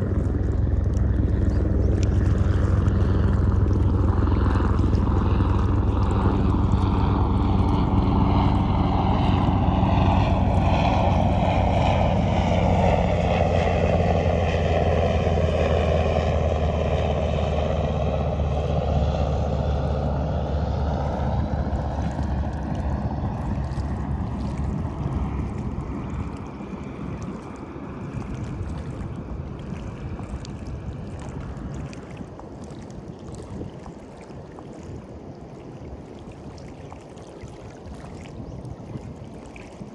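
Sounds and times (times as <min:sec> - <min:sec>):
aircraft engine drone: 0:00.0 - 0:32.6
faint surf: 0:00.0 - 0:39.9.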